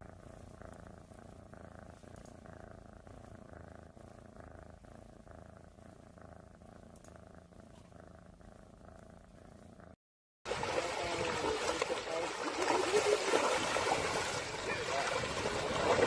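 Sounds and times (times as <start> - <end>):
cat purring: 0.0 - 10.0.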